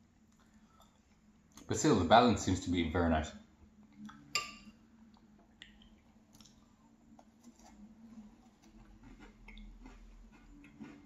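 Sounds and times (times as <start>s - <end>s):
metal spoon clinking on bowl: 4.3s - 4.8s
chewing and crunching: 5.6s - 11.0s.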